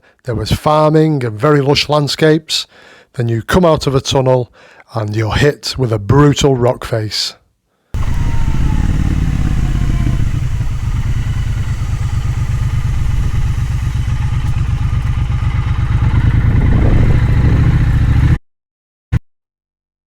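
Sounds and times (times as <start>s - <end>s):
motorcycle engine running: 8.0s - 18.4s.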